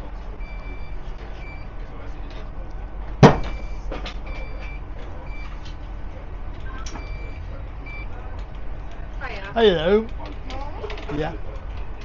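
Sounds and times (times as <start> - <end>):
train carriage rumble: 0.0 - 12.0
loud sharp knock: 3.2 - 3.6.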